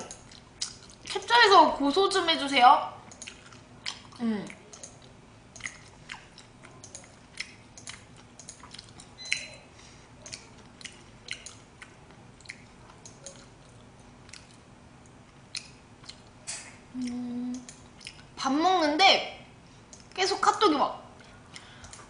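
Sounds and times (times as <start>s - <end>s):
person chewing with mouth clicks: 0.0s - 1.2s, 3.1s - 18.4s, 21.2s - 22.0s.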